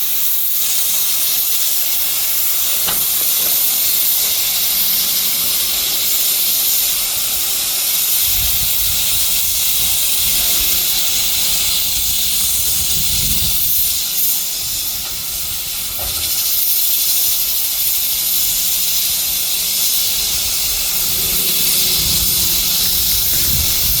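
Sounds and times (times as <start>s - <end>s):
steam locomotive hissing: 0.0s - 24.0s
low rumbles: 20.5s - 24.0s.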